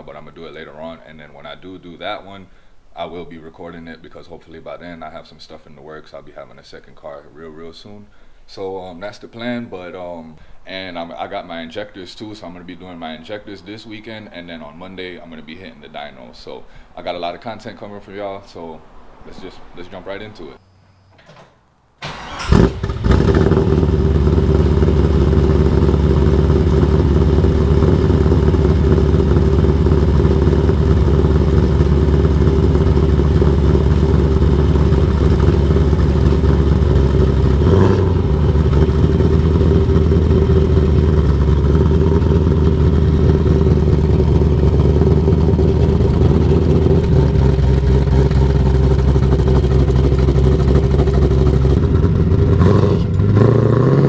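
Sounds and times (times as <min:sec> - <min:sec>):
car engine exhaust running: 0:22.5 - 0:54.0.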